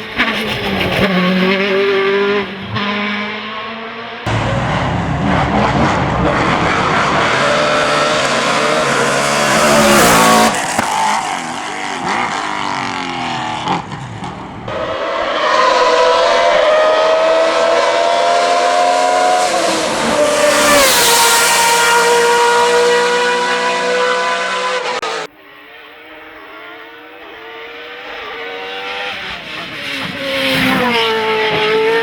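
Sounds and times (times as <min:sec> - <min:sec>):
race car engines at high revs: 0:00.0 - 0:25.3, 0:25.9 - 0:32.0.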